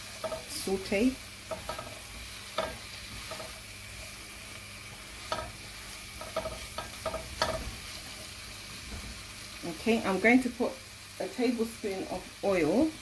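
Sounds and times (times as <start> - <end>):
spatula scraping and knocking pan: 0.0 - 0.8, 1.4 - 4.2, 4.9 - 9.2
food sizzling in a wok: 0.0 - 13.0.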